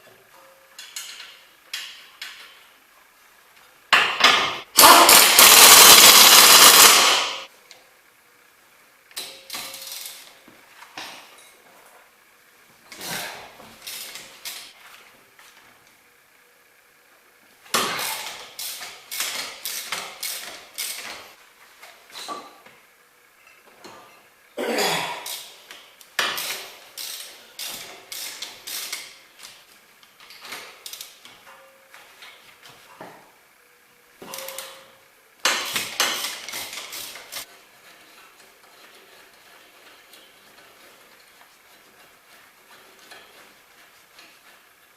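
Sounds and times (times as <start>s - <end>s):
metal tools clanking: 34.2s - 35.0s
hand tools knocking and scraping: 34.2s - 44.7s.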